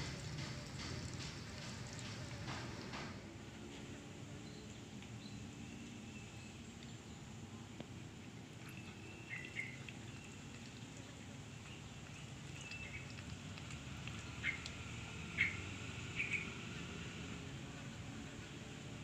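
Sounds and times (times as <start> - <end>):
small birds chirping: 8.6 - 17.0.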